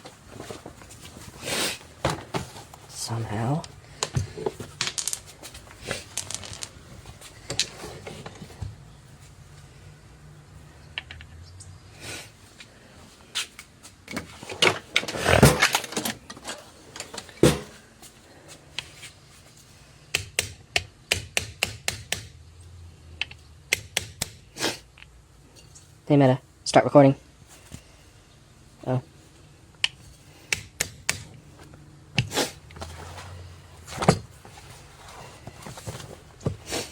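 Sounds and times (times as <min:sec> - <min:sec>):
metal tools clicking and knocking: 0:06.0 - 0:06.8.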